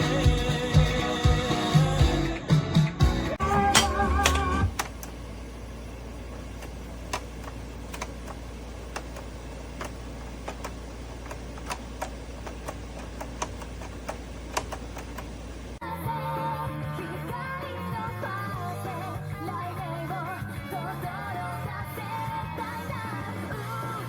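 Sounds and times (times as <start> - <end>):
music: 0.0 - 4.7, 15.8 - 24.0
steady low hum: 3.1 - 24.0
vinyl crackles and pops: 3.7 - 15.8.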